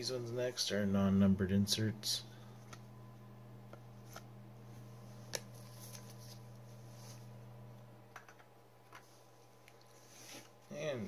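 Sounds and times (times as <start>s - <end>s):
low hum: 1.3s - 8.8s
trading cards shuffling: 5.2s - 7.3s.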